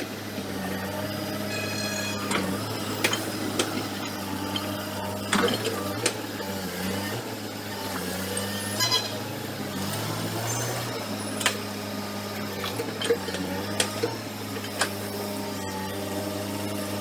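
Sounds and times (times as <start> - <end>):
diesel engine of earthmover running: 0.0 - 17.0
brief high squeal: 1.5 - 2.6
metallic clanks of bucket: 1.5 - 4.0.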